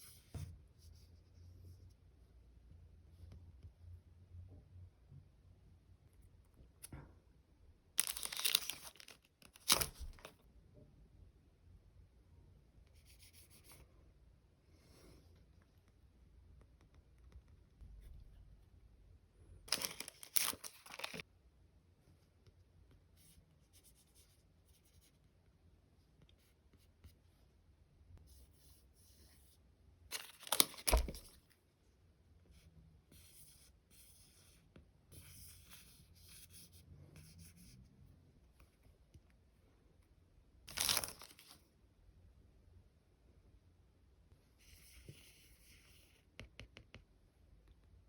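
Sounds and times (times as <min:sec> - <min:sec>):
packaging crinkling: 0:08.0 - 0:10.3, 0:19.7 - 0:21.2, 0:40.7 - 0:41.6
plastic packaging tearing: 0:08.0 - 0:10.3, 0:19.7 - 0:21.2.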